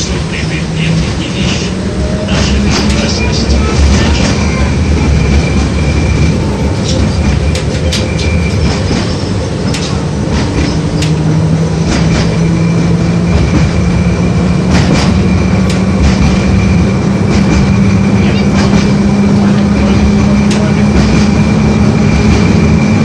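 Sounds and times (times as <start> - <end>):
tram wheels rumbling on rail: 0.0 - 23.0
sharp clicks and knocks from track: 6.9 - 11.2, 14.7 - 16.5, 20.4 - 21.4.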